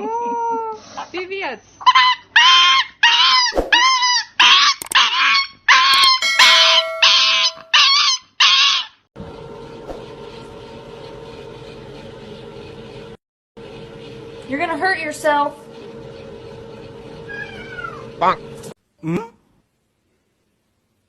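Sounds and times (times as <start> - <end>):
dog yelping: 1.9 - 6.1.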